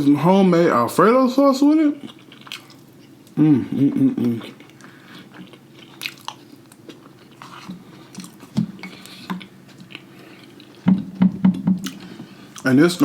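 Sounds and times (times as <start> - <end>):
person chewing: 2.0 - 11.2, 11.8 - 12.7.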